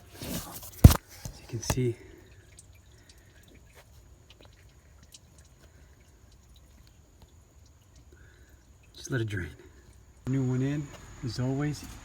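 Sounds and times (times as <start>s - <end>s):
oil dripping into a pan: 1.5s - 10.3s.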